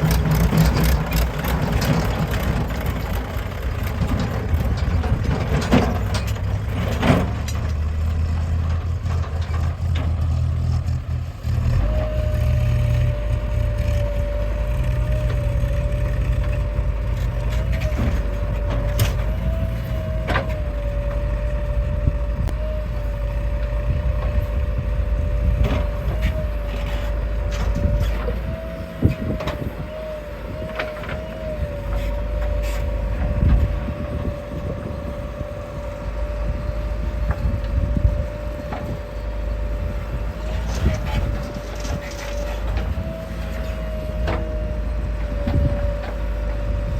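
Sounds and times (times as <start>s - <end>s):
diesel engines of machinery running: 0.0s - 46.9s.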